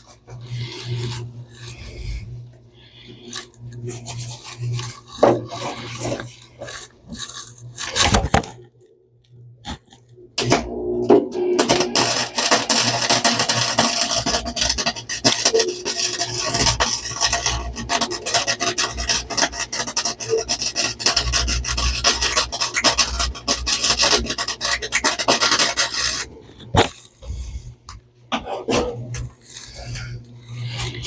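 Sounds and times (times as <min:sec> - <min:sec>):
welder arc crackling: 0:10.4 - 0:26.4.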